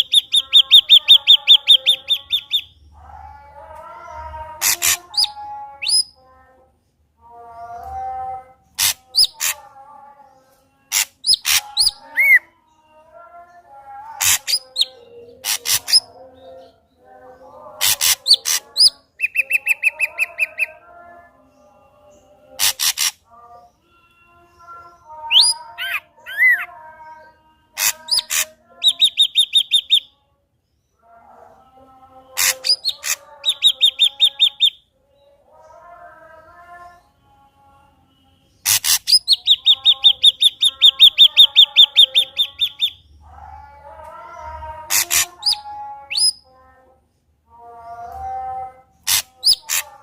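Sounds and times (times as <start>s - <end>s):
bird song with clicks and whistles: 27.8s - 30.1s, 32.4s - 34.9s, 38.6s - 43.1s, 44.9s - 46.5s, 49.0s - 50.0s.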